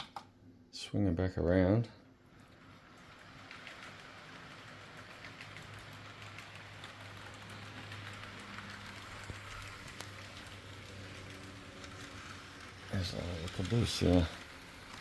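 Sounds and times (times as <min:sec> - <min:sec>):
wheels clicking on rails: 0:01.8 - 0:15.0.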